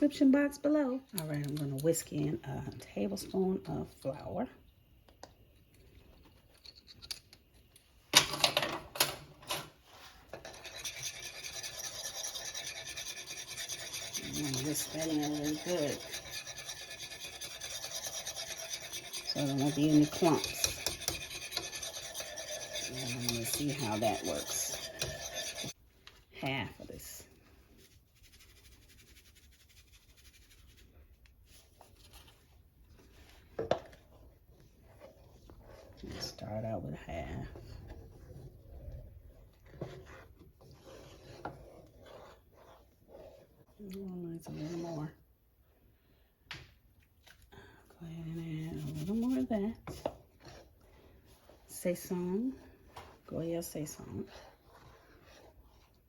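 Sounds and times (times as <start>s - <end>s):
whisk scraping against pan: 9.8s - 25.8s, 27.0s - 45.2s, 48.3s - 56.0s.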